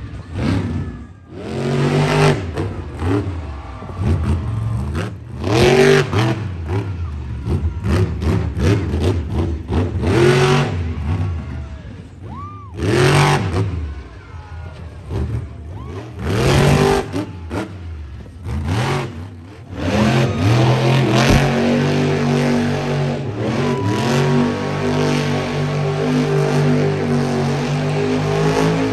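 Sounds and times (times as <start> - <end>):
monster truck engine revving: 0.0 - 28.9.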